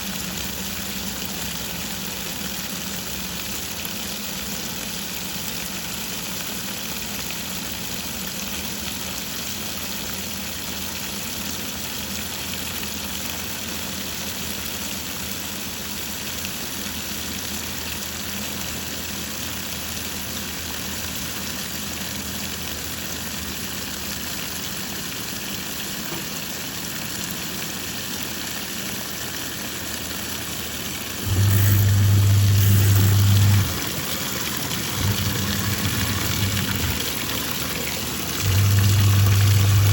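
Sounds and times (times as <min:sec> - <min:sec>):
water churning: 0:14.4 - 0:39.9
washing machine motor hum: 0:30.6 - 0:39.9
loud low buzzing hum: 0:31.1 - 0:39.9.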